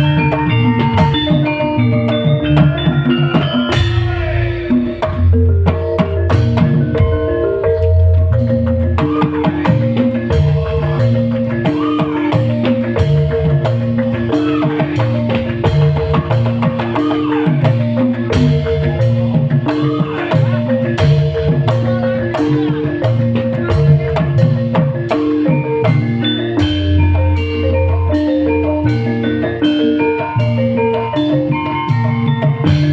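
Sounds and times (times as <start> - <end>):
live band music: 0.0 - 32.9.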